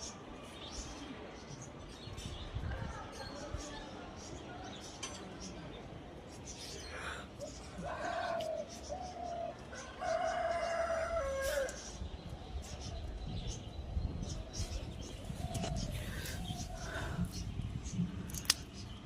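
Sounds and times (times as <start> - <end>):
rooster crowing: 9.7 - 11.8.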